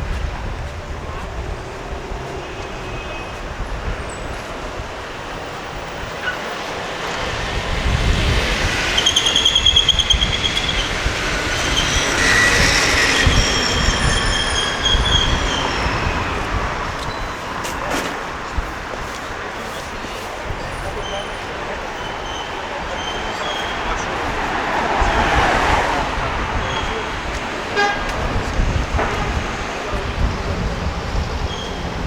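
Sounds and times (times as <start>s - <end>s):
train rumbling past: 0.0s - 32.0s
metallic wheel squeals: 8.6s - 17.8s.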